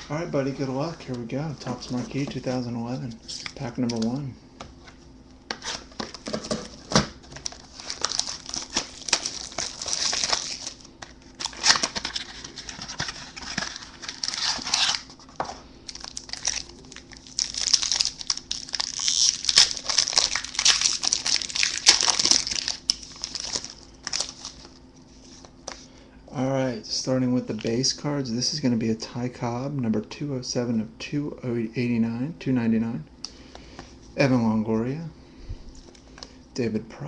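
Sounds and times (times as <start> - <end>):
wrapper tearing and crinkling: 5.6 - 15.2, 15.9 - 24.8.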